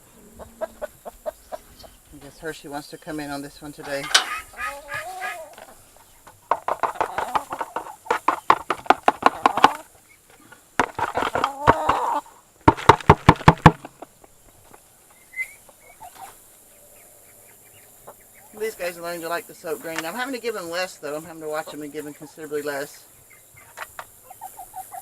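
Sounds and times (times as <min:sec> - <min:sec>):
poultry calling in pulsed notes: 0:00.0 - 0:06.3.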